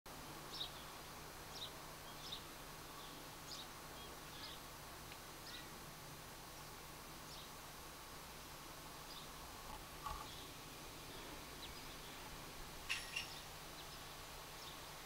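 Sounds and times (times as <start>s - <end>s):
low hum and hiss: 0.1s - 15.0s
birds chirping: 0.5s - 4.7s, 5.4s - 5.8s, 6.5s - 7.6s, 9.0s - 9.4s, 10.0s - 15.0s.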